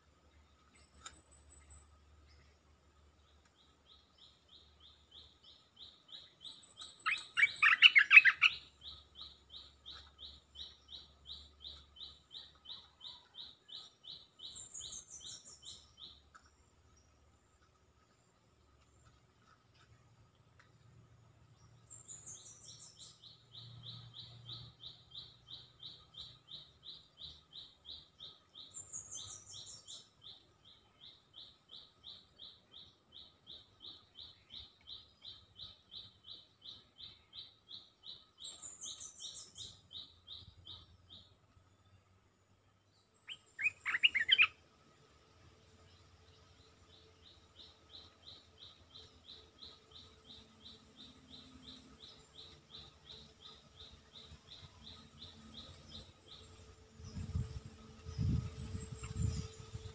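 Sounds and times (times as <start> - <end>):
bird trilling: 7.1 - 8.6, 43.3 - 44.5.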